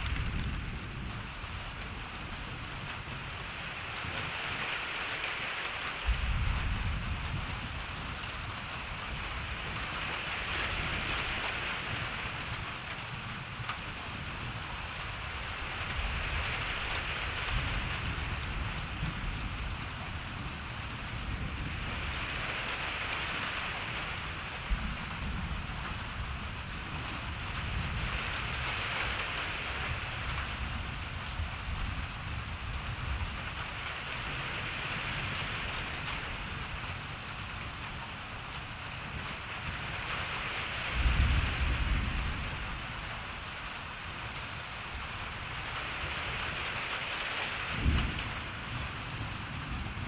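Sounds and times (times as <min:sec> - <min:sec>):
distant thunder rumble: 0:00.0 - 0:02.4
steady rain hiss: 0:00.0 - 0:50.0.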